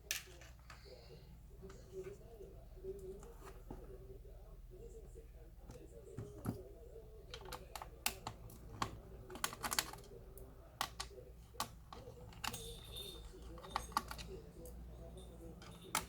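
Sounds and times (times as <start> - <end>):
faint steady hum: 0.0 - 16.0
plastic laptop parts clicking: 7.3 - 10.2, 10.8 - 12.7, 13.4 - 14.4.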